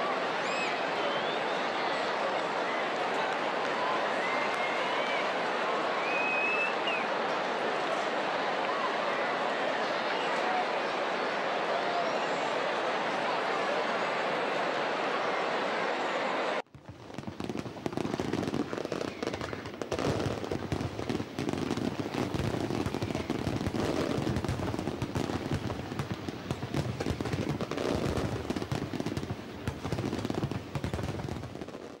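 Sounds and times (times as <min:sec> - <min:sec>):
fireworks bangs and crackling: 0:16.7 - 0:32.0.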